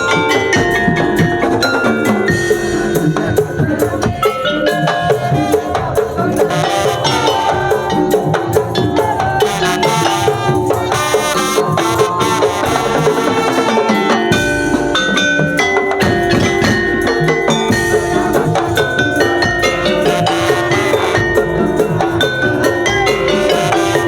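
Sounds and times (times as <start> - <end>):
drums: 0.0 - 24.0
held melodic tones: 0.0 - 24.0
mallet percussion notes: 0.0 - 24.0
wood-block knocks: 14.2 - 24.0.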